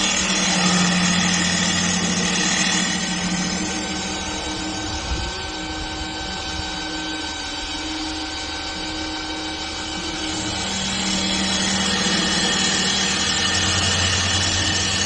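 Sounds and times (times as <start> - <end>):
high whining tones: 0.0 - 15.0
wood lathe machine hum: 0.0 - 15.0.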